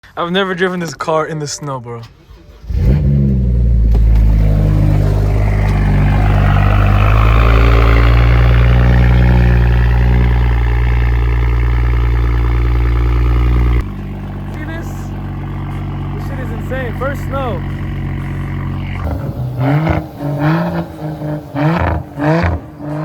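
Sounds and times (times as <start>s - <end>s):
turbocharged car engine revving: 2.5s - 23.0s
turbo rushing hiss: 19.1s - 22.8s.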